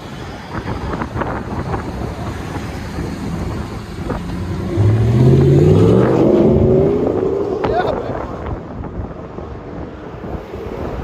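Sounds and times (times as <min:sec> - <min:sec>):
car engine revving: 0:02.9 - 0:08.3.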